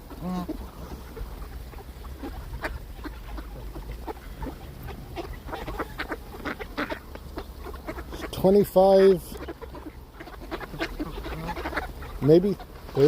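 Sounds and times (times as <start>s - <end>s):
steady low rumble: 0.0s - 8.7s
ducks and geese calling: 0.0s - 13.0s.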